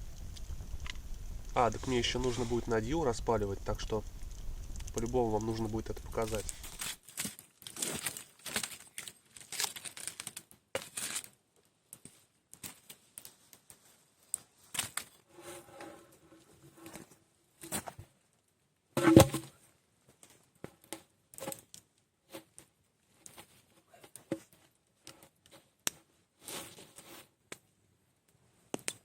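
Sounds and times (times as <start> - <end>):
rustling and crinkling: 0.0 - 18.3, 19.0 - 27.5
small clicks: 3.6 - 7.0.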